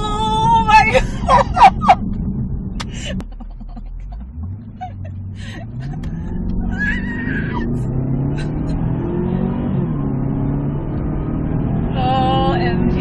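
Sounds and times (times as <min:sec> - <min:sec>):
car engine accelerating: 0:00.0 - 0:13.0
woman laughing: 0:00.7 - 0:02.0, 0:02.8 - 0:07.8, 0:08.4 - 0:08.8.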